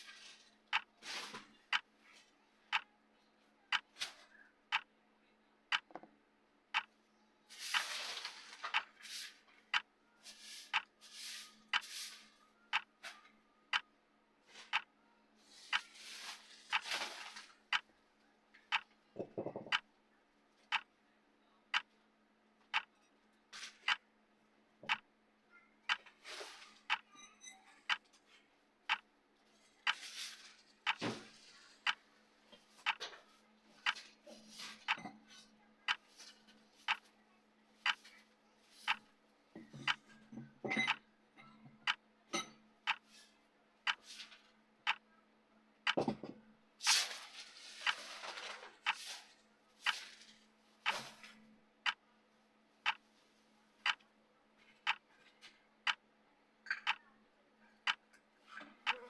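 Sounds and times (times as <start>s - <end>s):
clock ticking: 0.7s - 1.0s, 2.7s - 2.9s, 3.7s - 3.9s, 5.7s - 6.0s, 6.7s - 6.9s, 10.7s - 10.9s, 12.7s - 12.9s, 14.7s - 14.9s, 16.7s - 16.9s, 17.7s - 17.9s, 18.7s - 19.0s, 19.6s - 19.9s, 21.7s - 22.0s, 22.7s - 23.0s, 24.8s - 25.1s, 25.9s - 26.1s, 26.9s - 27.1s, 27.9s - 28.1s, 28.9s - 29.1s, 30.8s - 31.0s, 31.8s - 32.0s, 32.8s - 33.0s, 33.8s - 34.1s, 34.8s - 35.1s, 35.9s - 36.1s, 36.9s - 37.1s, 37.8s - 38.1s, 38.9s - 39.1s, 39.7s - 40.1s, 40.9s - 41.1s, 41.8s - 43.1s, 44.8s - 45.1s, 50.8s - 51.1s, 51.8s - 52.1s, 52.8s - 53.0s, 53.8s - 54.1s, 54.8s - 55.1s, 55.8s - 56.0s, 56.8s - 57.1s, 57.8s - 58.2s.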